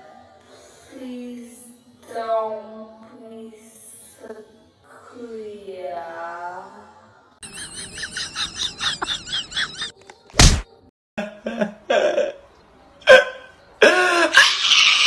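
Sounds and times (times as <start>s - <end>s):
sharp thump: 10.3s - 10.7s.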